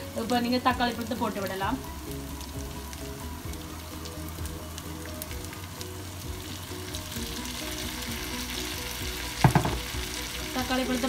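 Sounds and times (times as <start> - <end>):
fish and onions sizzling in a pan: 0.0 - 11.0
chopped tomatoes tipped into pan: 9.4 - 9.9.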